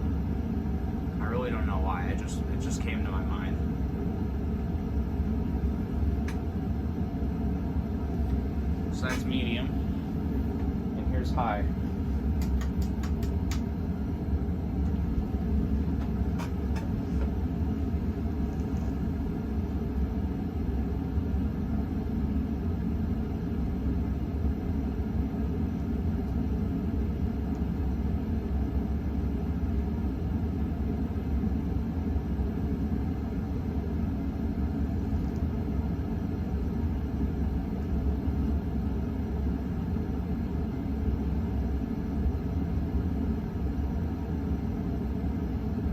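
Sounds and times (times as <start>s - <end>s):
ceiling fan humming: 0.0s - 45.9s.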